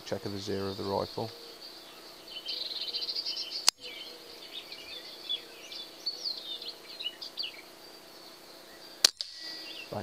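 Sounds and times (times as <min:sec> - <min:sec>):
songbirds chirping and twittering: 0:00.0 - 0:10.0
sharp click: 0:09.0 - 0:09.5.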